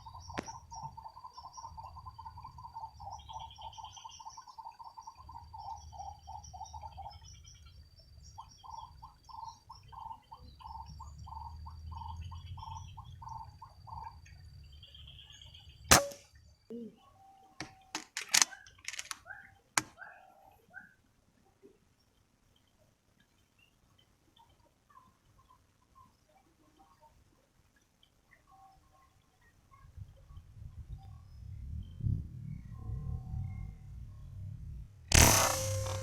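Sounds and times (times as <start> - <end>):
air rifle shot: 15.9 - 16.2, 35.1 - 36.0
clicks and knocks: 17.9 - 19.2.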